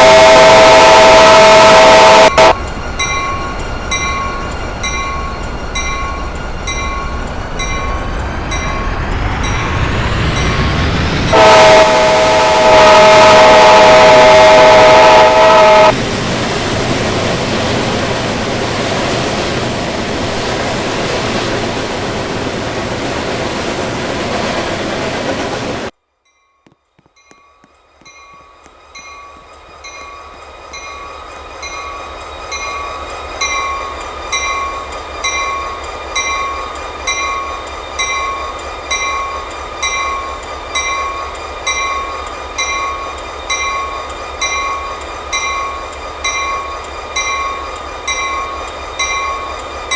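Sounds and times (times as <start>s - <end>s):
train horn: 0.0s - 7.9s, 9.6s - 16.0s
railroad bell ringing: 0.0s - 16.0s, 26.3s - 49.9s
train passing rumble: 0.0s - 26.0s, 27.2s - 49.9s.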